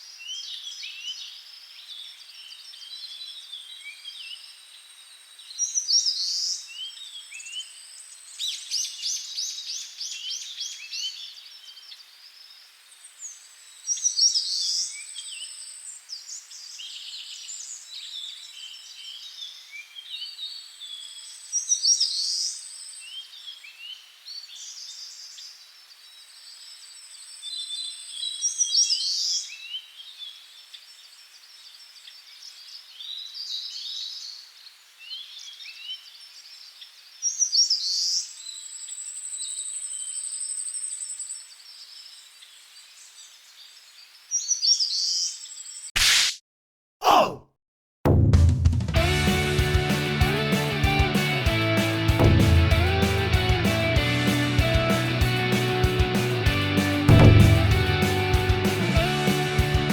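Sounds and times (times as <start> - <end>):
birds chirping: 49.0 - 59.9.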